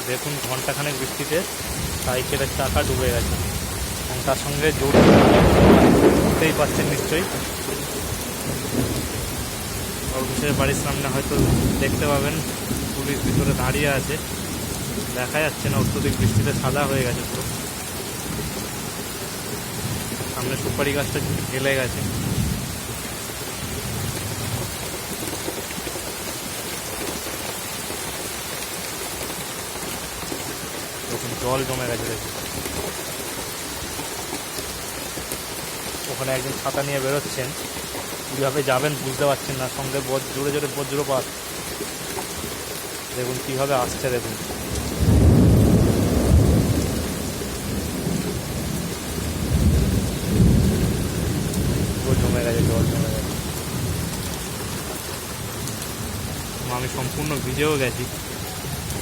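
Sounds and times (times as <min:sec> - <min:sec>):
heavy rain pouring: 0:00.0 - 0:59.0
thunder rumbling: 0:01.7 - 0:24.9, 0:43.8 - 0:59.0.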